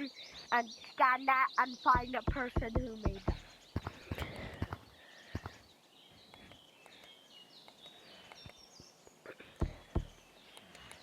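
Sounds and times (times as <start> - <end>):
birds chirping: 0.0 - 11.0
sharp knocks: 1.9 - 5.6, 9.6 - 10.2.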